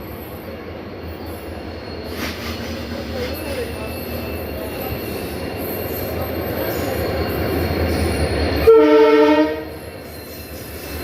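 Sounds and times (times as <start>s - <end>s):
train rumbling and rattling: 0.0s - 11.0s
train horn blast: 8.6s - 9.7s.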